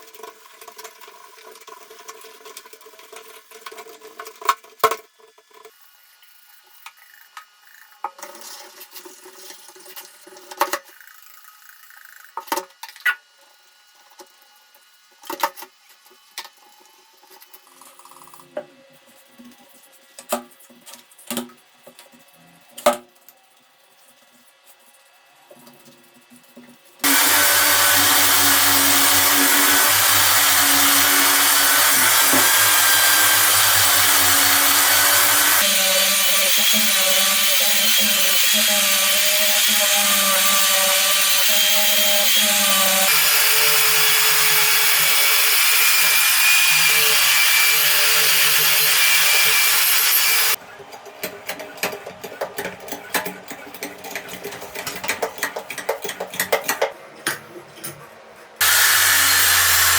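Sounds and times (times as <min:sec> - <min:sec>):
power tool running: 0:27.0 - 0:50.6, 0:58.6 - 0:59.9.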